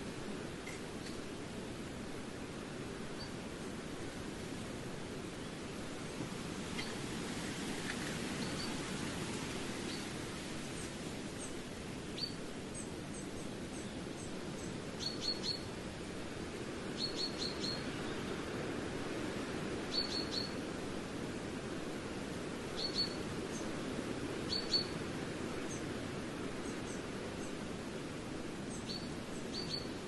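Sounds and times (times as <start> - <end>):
small bird chirping: 19.9 - 20.6, 28.7 - 29.9.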